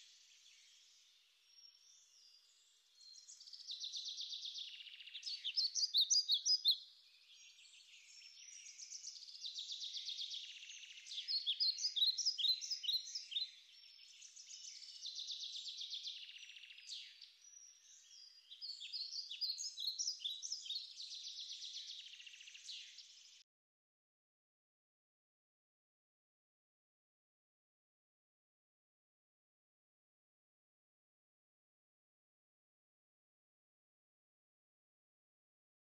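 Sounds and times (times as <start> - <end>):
songbirds singing: 0.0 - 23.4.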